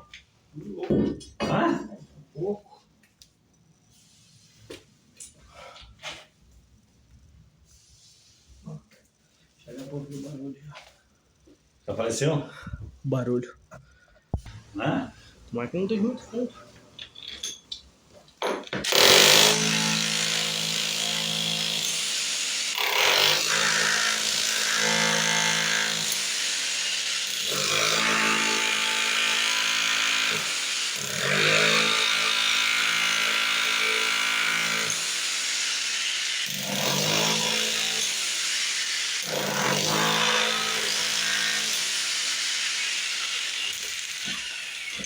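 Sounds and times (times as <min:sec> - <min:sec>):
electric power tool running: 0:37.8 - 0:45.0.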